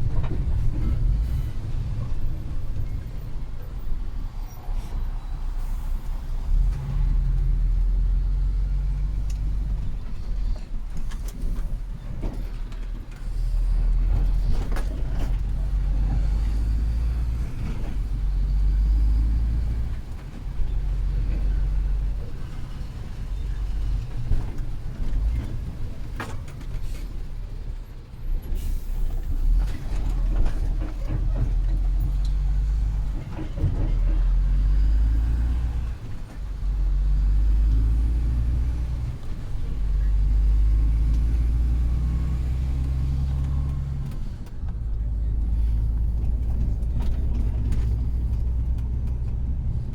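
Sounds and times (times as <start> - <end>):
truck diesel engine rumble: 0.0 - 49.9.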